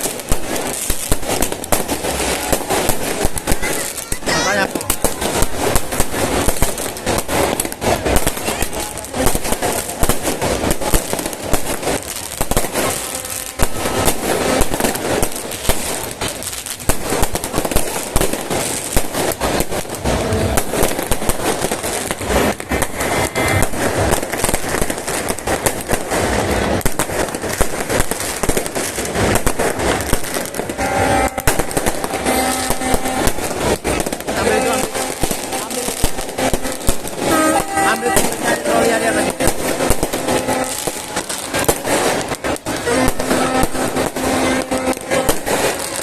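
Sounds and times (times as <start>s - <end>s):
fireworks cracking and banging: 0.0s - 46.0s.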